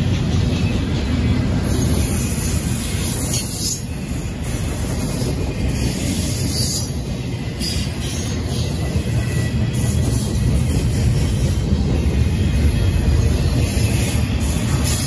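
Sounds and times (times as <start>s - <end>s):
freight cars rolling on rails: 0.0s - 15.0s.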